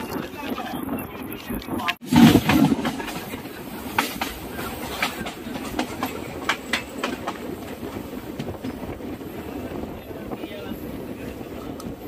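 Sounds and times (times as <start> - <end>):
wheels clacking over rail joints: 0.0 - 9.3
train rumbling on rails: 0.0 - 12.0.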